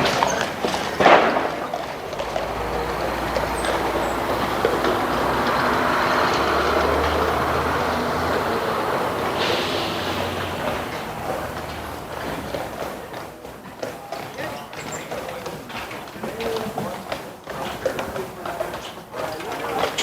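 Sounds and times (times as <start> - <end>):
vehicle passing: 0.0 - 13.5.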